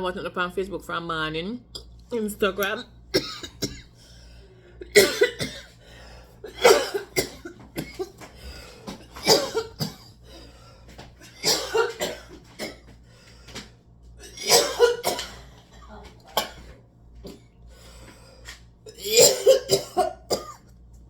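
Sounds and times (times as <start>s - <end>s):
woman coughing hard: 3.1s - 4.0s, 4.8s - 5.8s, 6.4s - 8.2s, 9.1s - 10.2s, 11.3s - 12.8s, 14.2s - 16.7s, 18.9s - 20.7s
woman breathing: 5.8s - 6.4s, 8.4s - 8.9s.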